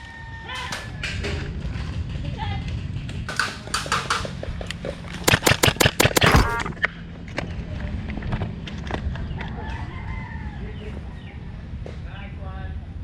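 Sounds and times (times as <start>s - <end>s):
airsoft gun shots: 5.2s - 6.9s.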